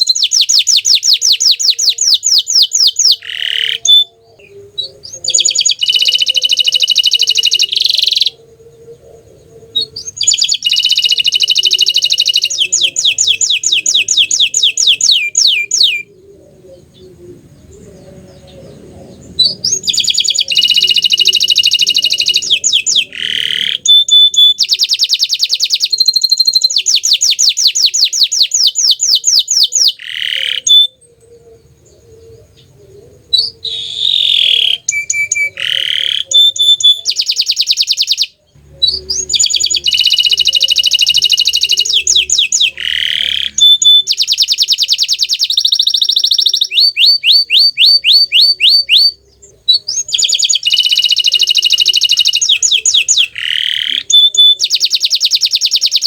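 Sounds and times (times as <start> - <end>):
canary singing high trills: 0.0 - 56.0.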